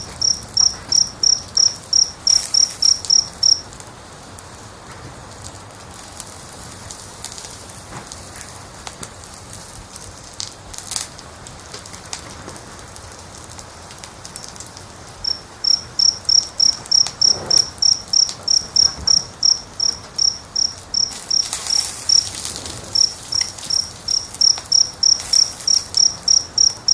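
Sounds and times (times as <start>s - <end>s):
cricket chirping: 0.0s - 3.7s, 15.2s - 26.9s
wood fire crackling: 0.0s - 26.9s.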